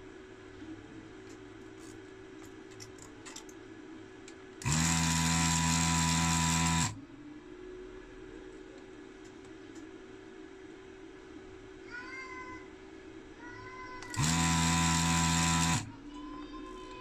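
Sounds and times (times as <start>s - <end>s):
small electric motor running: 4.6s - 7.0s, 14.1s - 16.0s.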